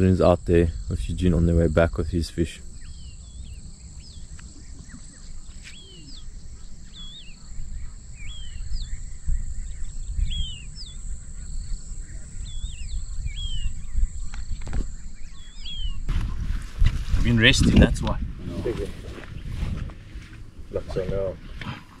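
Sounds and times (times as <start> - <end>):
high insect drone: 0.0 - 16.0
wind rumbling on microphone: 0.0 - 22.0
birds whistling calls: 2.5 - 16.5.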